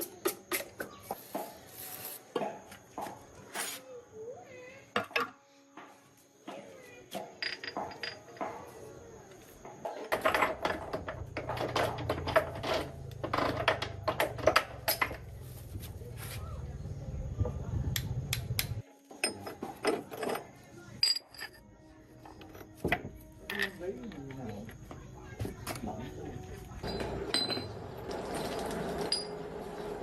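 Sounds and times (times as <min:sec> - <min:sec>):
metal tools clinking: 0:07.4 - 0:08.5, 0:19.2 - 0:21.6, 0:26.8 - 0:29.5.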